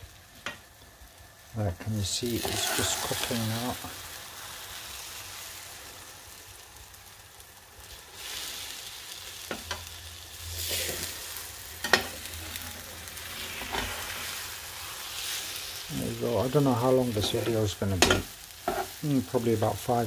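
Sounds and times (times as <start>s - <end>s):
omelette sizzling in frying pan: 0.0s - 20.0s
spatula scraping and knocking pan: 2.4s - 3.2s, 11.8s - 12.8s, 17.2s - 19.0s.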